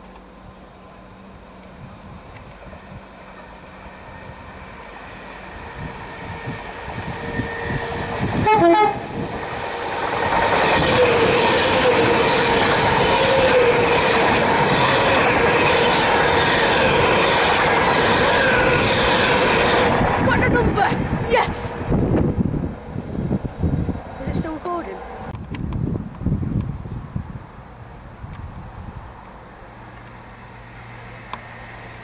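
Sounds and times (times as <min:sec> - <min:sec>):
electric train passing: 0:00.0 - 0:32.0
wheels on rail rushing: 0:00.0 - 0:32.0
train horn blast: 0:08.4 - 0:09.2.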